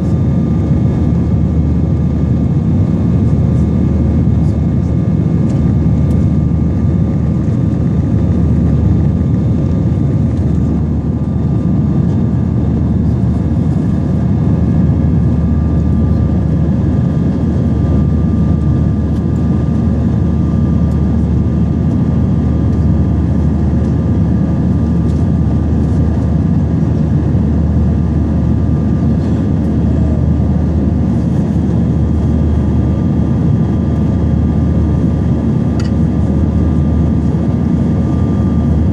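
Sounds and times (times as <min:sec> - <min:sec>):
jet engines rumbling in cabin: 0:00.0 - 0:38.9.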